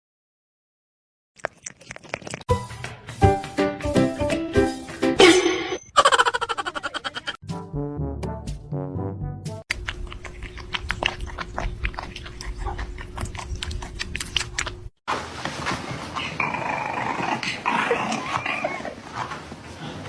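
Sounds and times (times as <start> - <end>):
noisy animal sound: 9.8 - 14.7
dog growling: 16.2 - 19.3.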